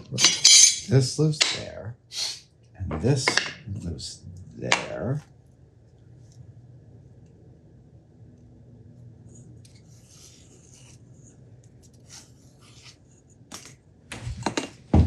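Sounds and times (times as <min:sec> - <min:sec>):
steady low hum: 0:00.0 - 0:15.0
small parts rubbing and scraping: 0:00.1 - 0:01.0.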